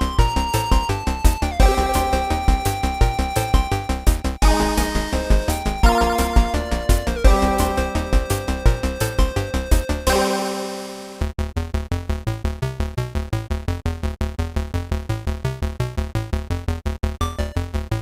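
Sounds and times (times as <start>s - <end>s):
fast synth beat with bass pulse: 0.0s - 10.1s
held synthesizer chord: 1.6s - 3.5s, 4.4s - 11.3s.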